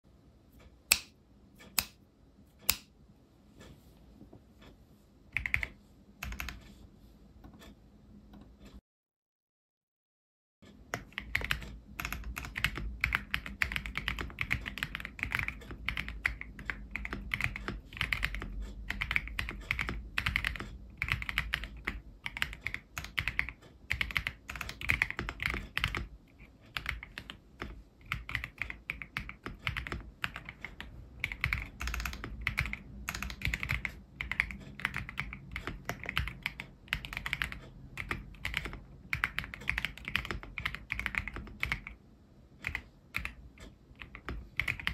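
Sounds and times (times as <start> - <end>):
typing on mechanical keyboard: 5.4 - 6.6, 10.9 - 42.0, 42.6 - 44.9.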